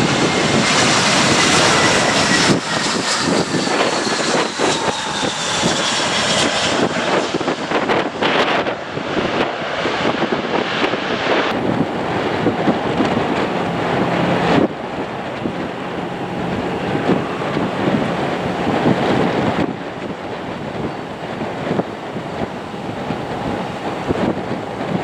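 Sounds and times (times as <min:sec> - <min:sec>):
jet engine noise: 0:00.0 - 0:25.0
wind buffeting microphone: 0:00.0 - 0:25.0.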